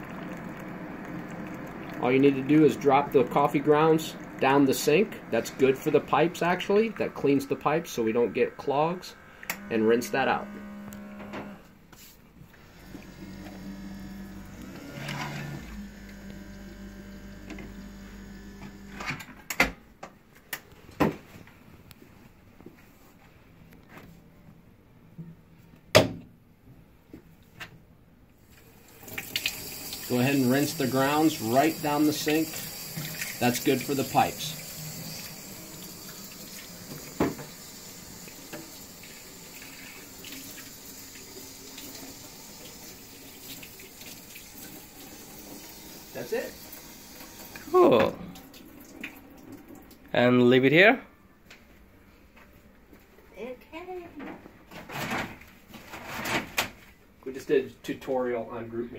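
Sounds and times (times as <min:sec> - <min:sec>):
water running from a tap: 0:00.0 - 0:06.0, 0:15.8 - 0:18.9, 0:28.7 - 0:50.0.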